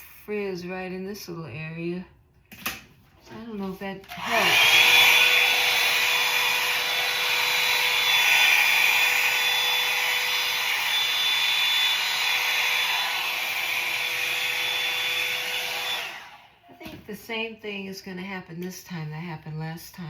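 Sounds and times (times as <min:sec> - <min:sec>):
hair dryer running: 0:04.0 - 0:16.7.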